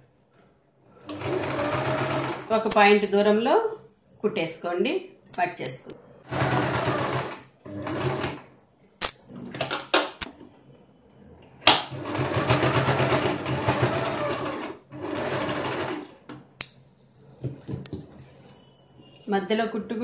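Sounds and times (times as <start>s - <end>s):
sewing machine stitching: 1.0s - 2.5s, 6.3s - 8.5s, 11.8s - 16.2s.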